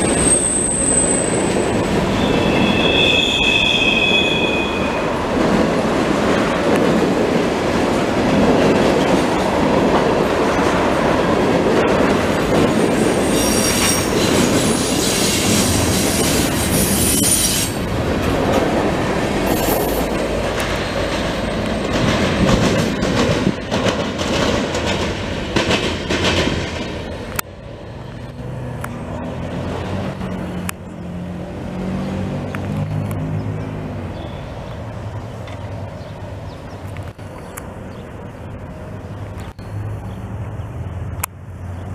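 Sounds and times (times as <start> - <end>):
wheel squeal: 0.0 - 5.1, 13.2 - 17.8
freight cars clattering over rails: 5.1 - 27.4.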